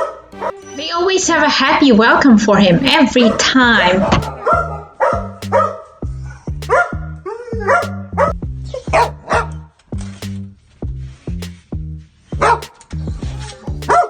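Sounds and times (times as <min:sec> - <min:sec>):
background music: 0:00.0 - 0:05.8
dogs barking and yipping: 0:03.2 - 0:05.9.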